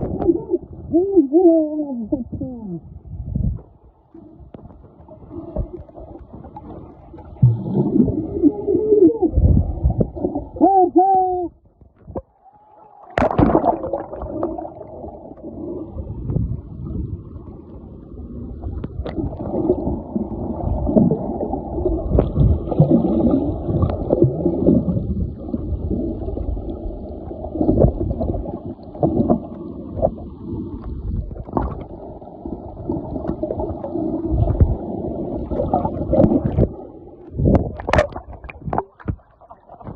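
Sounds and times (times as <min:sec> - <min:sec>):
whale calls underwater: 0:07.8 - 0:09.4, 0:12.3 - 0:13.4
rushing water noise: 0:13.0 - 0:15.8.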